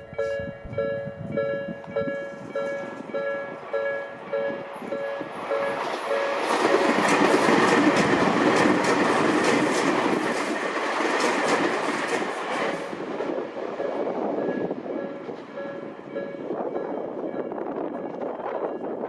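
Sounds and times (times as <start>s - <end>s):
crossing electronic warning bell: 0.0s - 6.9s, 13.8s - 19.0s
train wheels clattering over rail joints: 5.6s - 17.0s.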